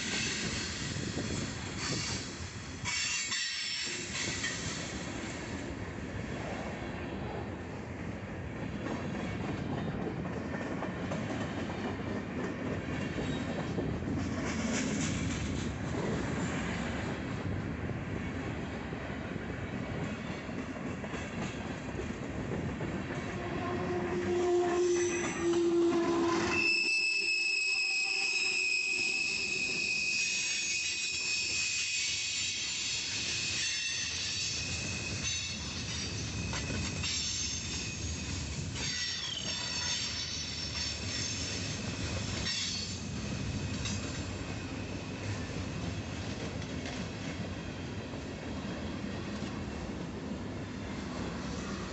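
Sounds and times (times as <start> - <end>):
freight train cars rumbling past: 0.0 - 51.9
high wheel squeal: 24.2 - 43.0.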